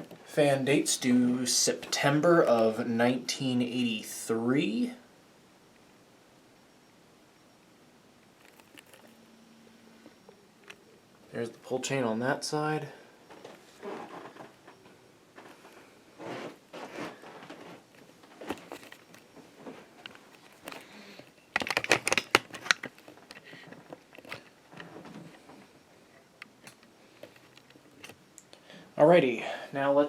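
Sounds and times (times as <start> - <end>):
sharp clicks and crackles: 8.2 - 9.2, 17.4 - 25.6, 26.4 - 28.6
handling clicks and rustling: 8.2 - 11.0, 13.2 - 28.6.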